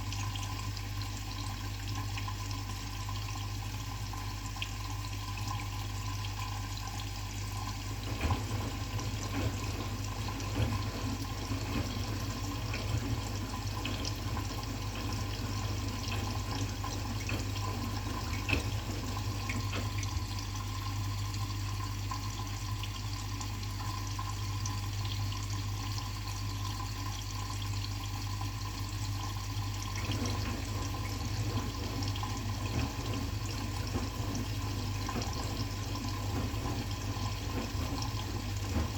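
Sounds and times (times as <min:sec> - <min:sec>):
washing machine humming: 0:00.0 - 0:38.9
water sloshing in washing machine: 0:00.0 - 0:38.9.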